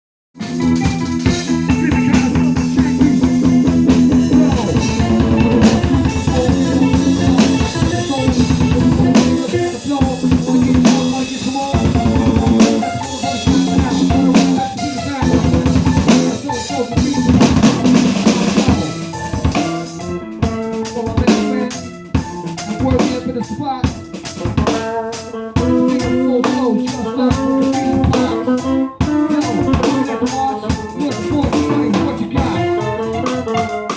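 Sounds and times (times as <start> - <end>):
drum kit playing: 0.4 - 33.9
held low notes: 1.2 - 21.8.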